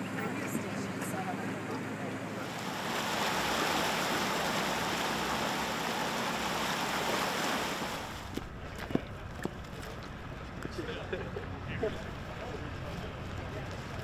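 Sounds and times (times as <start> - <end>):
floodwater rushing: 2.2 - 8.8.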